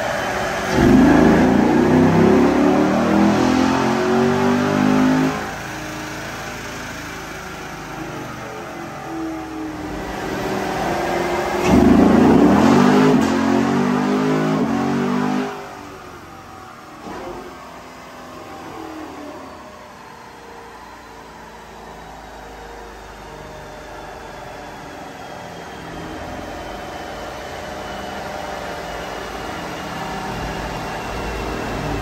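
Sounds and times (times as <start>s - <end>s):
car engine running under load: 0.0s - 32.0s.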